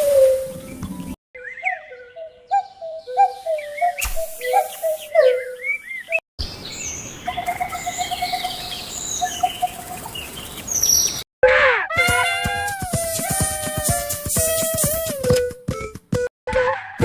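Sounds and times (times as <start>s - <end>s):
birds whistled gliding calls: 0.0s - 6.2s, 6.8s - 11.2s
birds chirping and trilling: 0.0s - 11.2s.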